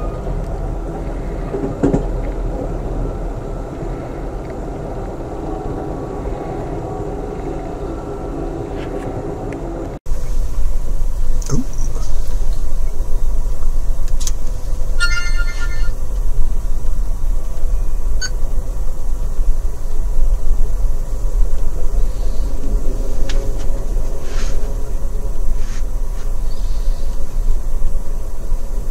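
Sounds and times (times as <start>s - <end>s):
train wheels rumbling on rail: 0.0s - 28.9s
high-pitched tone: 15.0s - 16.0s.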